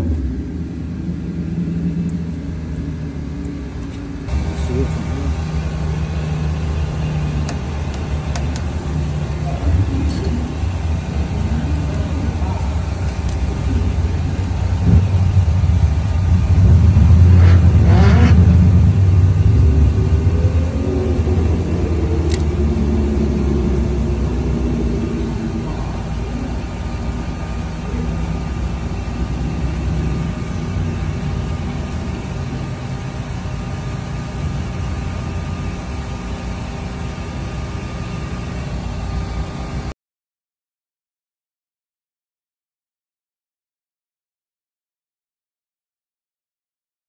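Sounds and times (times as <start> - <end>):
drag car engine rumbling: 0.0 - 39.9.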